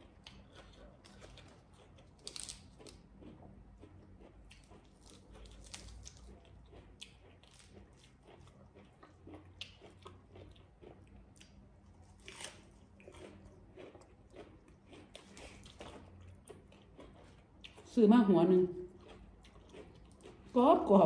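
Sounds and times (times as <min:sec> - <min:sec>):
person chewing crisp lettuce: 0:00.0 - 0:18.0, 0:18.6 - 0:20.9.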